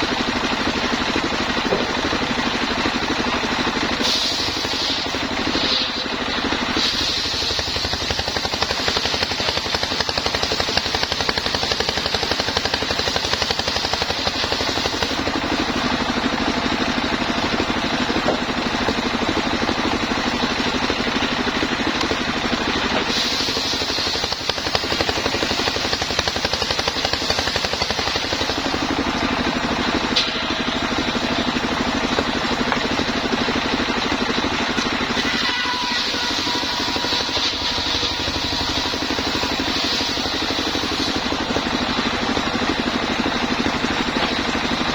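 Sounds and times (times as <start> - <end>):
sawmill engine running: 0.0 - 44.9.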